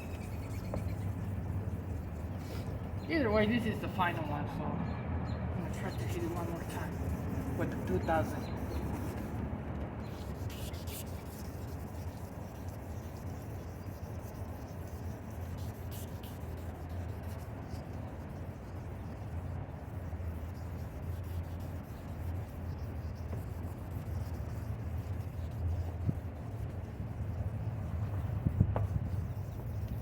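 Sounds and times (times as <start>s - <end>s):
sandpaper rubbing on plastic: 0.0s - 2.9s, 5.7s - 9.4s, 10.0s - 30.0s.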